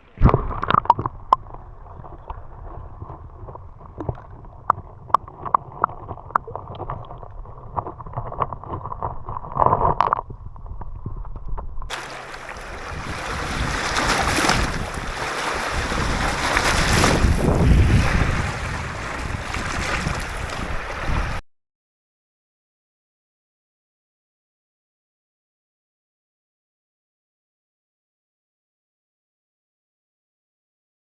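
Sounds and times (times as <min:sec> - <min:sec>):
low wash of water: 0:11.9 - 0:21.4
wind and surf rushing: 0:11.9 - 0:21.4.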